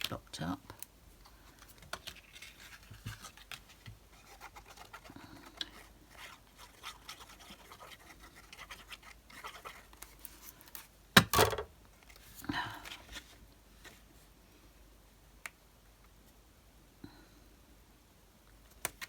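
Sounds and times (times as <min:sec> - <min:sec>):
scratching of craft materials: 0:00.8 - 0:10.9.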